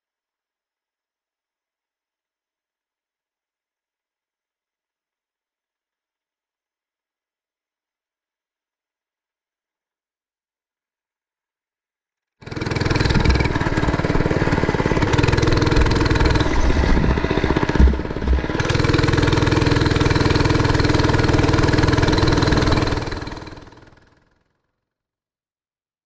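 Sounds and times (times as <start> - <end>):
small engine running: 12.4 - 24.4
low thumps: 12.8 - 21.4.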